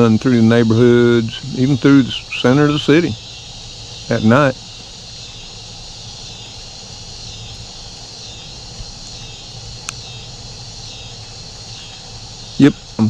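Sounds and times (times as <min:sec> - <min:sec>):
insects chirping: 0:00.0 - 0:13.0
light rain hiss: 0:00.0 - 0:13.0
sharp click: 0:09.8 - 0:10.1.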